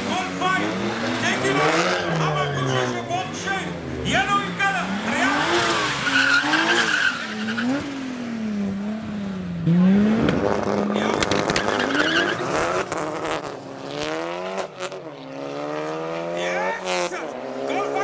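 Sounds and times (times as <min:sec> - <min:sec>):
car engine revving: 0:00.0 - 0:18.0
sharp cracks: 0:10.2 - 0:12.0.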